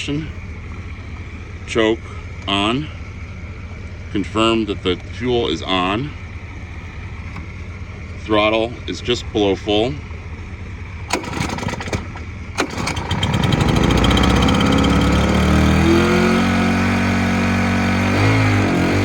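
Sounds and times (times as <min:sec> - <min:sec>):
small gasoline engine starting: 0:11.1 - 0:19.0.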